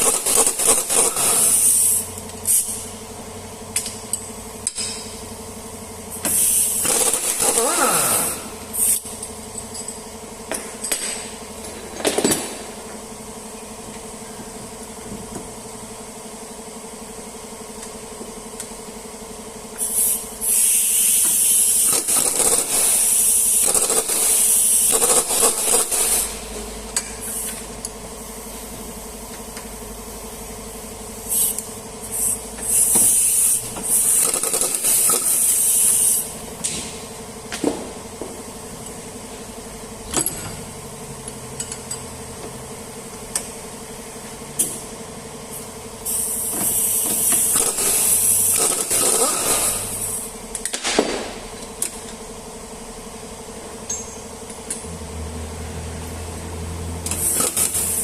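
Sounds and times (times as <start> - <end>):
air tool hissing and rattling: 0.0 - 3.2, 6.1 - 9.4, 19.7 - 37.6, 45.5 - 50.8, 57.0 - 58.0
steady hum: 19.4 - 58.0
metallic clinks and knocks: 53.9 - 54.2.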